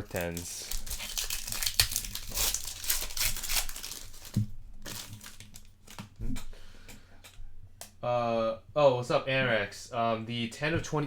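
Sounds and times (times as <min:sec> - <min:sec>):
card pack wrapper crinkling: 0:00.0 - 0:06.2
cards being handled: 0:00.0 - 0:06.5.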